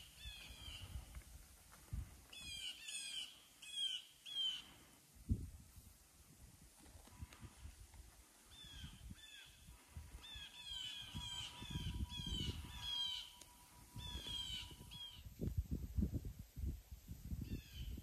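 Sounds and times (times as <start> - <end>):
low rumble of wind buffeting: 0.0 - 2.6, 5.1 - 18.0
bird giving harsh calls: 10.2 - 15.2.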